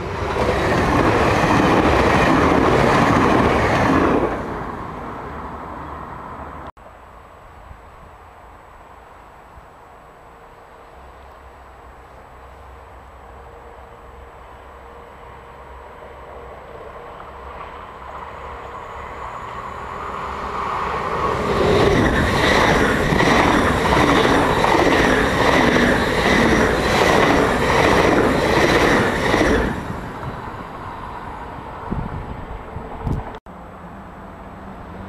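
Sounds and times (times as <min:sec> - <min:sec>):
electric train passing: 0:00.0 - 0:35.0
wheel-on-rail noise: 0:17.0 - 0:33.4.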